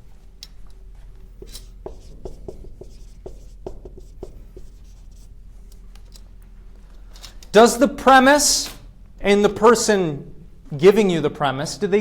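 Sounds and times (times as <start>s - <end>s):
writing on a board: 1.3s - 5.8s.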